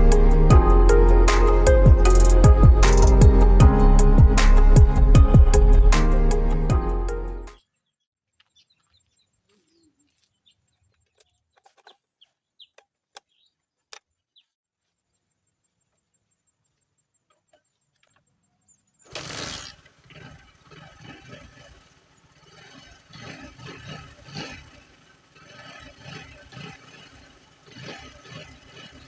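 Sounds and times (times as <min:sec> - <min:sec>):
birds chirping and clucking: 0:07.9 - 0:13.6
motorcycle engine starting and running: 0:19.0 - 0:29.0.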